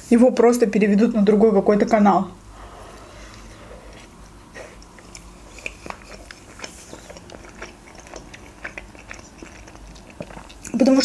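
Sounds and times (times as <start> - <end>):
wet chewing clicks: 3.3 - 11.0
biting into wrap: 4.7 - 10.8.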